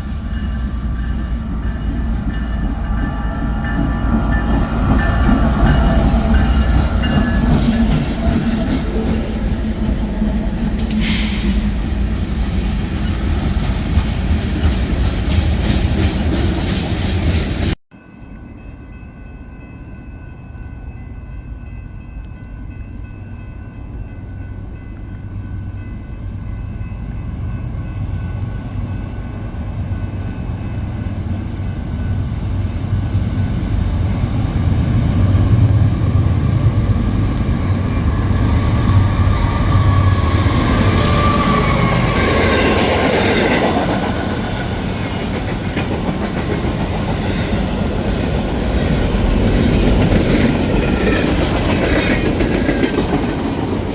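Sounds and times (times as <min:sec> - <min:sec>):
train rumble: 0:00.0 - 0:17.8, 0:18.5 - 0:53.9
wheels clacking over rail joints: 0:03.6 - 0:17.8, 0:33.6 - 0:53.9.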